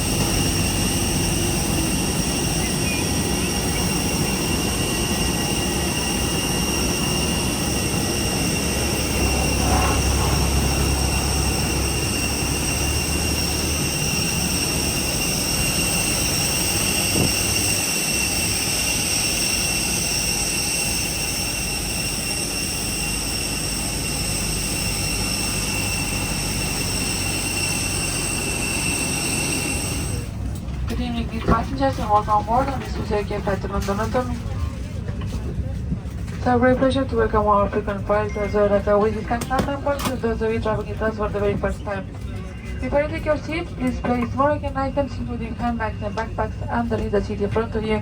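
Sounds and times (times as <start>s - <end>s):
jet turbine whine: 0.0s - 34.2s.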